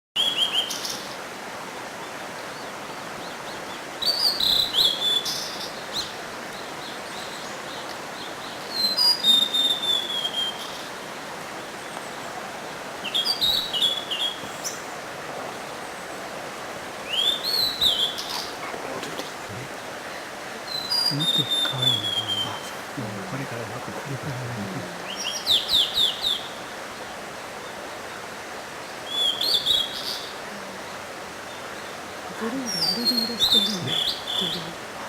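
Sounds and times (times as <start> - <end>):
steady background hiss: 0.2 - 35.0
bird singing whistled notes: 4.0 - 6.1, 8.7 - 10.9, 13.0 - 14.8, 17.1 - 18.6, 20.7 - 22.7, 25.0 - 26.6, 29.0 - 30.3.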